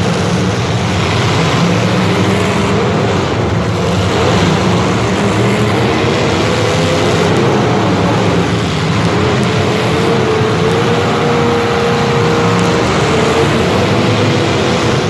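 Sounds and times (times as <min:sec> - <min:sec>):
engine running loudly: 0:00.0 - 0:15.0.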